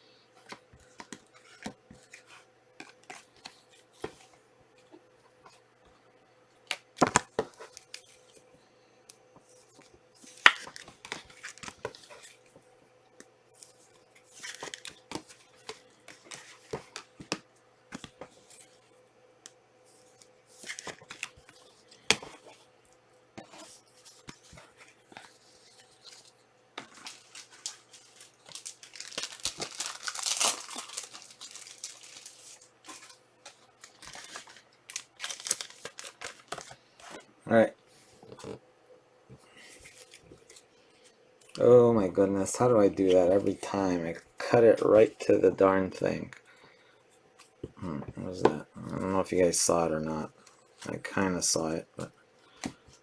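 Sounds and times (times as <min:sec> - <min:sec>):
card wrappers crinkling and rustling: 0:06.7 - 0:08.5, 0:09.5 - 0:12.6, 0:13.6 - 0:18.9, 0:19.9 - 0:22.7, 0:23.4 - 0:37.3, 0:39.4 - 0:46.3
packs tearing open: 0:26.8 - 0:36.8.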